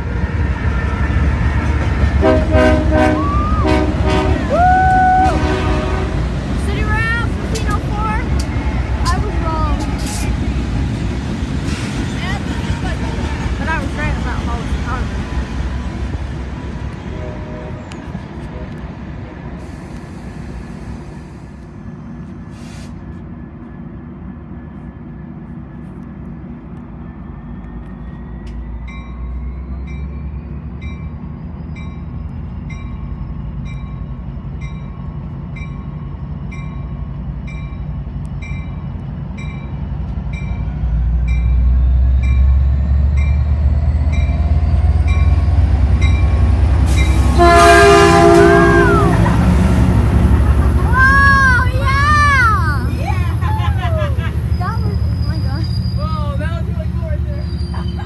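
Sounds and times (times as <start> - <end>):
train engine and wheel rumble: 0.0 - 58.0
loud burst from locomotive: 0.1 - 17.8, 45.4 - 56.8
train bell ringing: 28.0 - 48.7.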